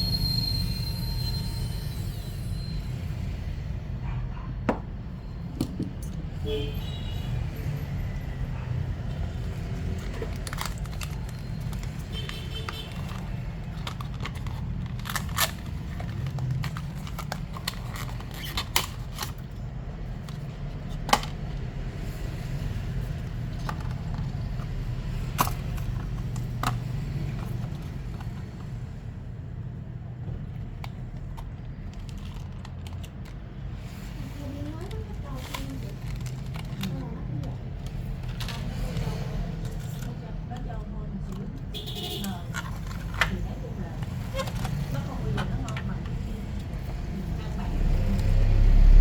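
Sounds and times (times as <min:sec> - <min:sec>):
small tools clicking and tapping: 0:09.4 - 0:19.6, 0:23.2 - 0:28.8, 0:30.8 - 0:34.0, 0:34.7 - 0:47.0.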